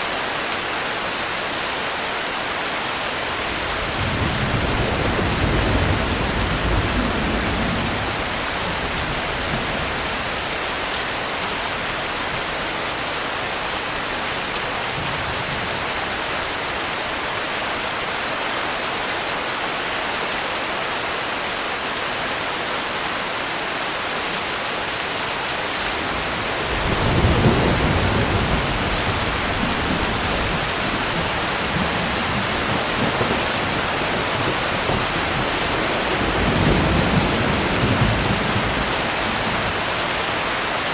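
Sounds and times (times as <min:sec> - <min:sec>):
steady rain: 0:00.0 - 0:40.9
distant thunder rumbling: 0:03.4 - 0:10.5, 0:25.6 - 0:40.0.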